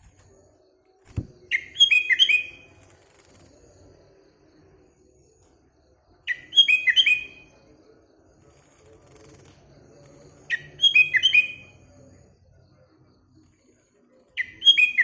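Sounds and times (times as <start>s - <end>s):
bird singing whistled notes: 1.2s - 2.8s, 6.2s - 7.7s, 10.3s - 12.1s, 14.4s - 15.0s.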